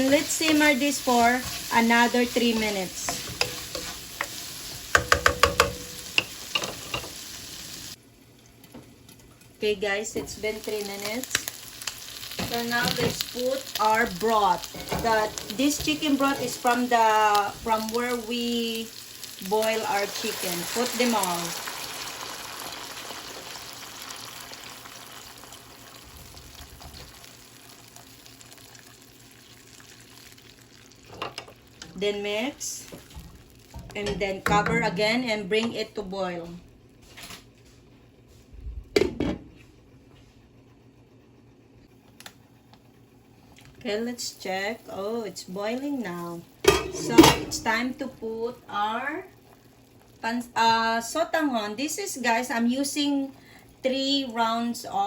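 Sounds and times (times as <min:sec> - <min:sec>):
chicken sizzling in a pan: 0:00.0 - 0:08.0, 0:10.4 - 0:31.2
broth hissing and bubbling in pot: 0:00.0 - 0:08.4, 0:09.3 - 0:34.4, 0:42.5 - 0:54.6
utensil knocking against pan: 0:04.9 - 0:06.3.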